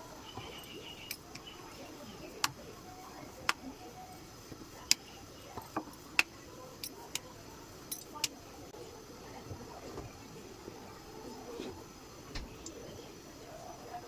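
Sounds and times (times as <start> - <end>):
faint steady background noise: 0.0 - 14.0.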